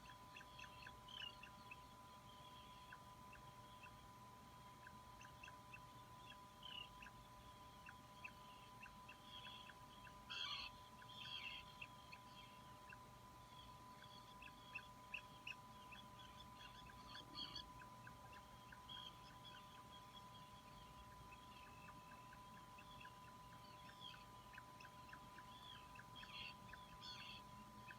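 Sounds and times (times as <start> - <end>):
bird chick peeping: 0.0 - 27.9
faint steady tone: 0.0 - 27.9.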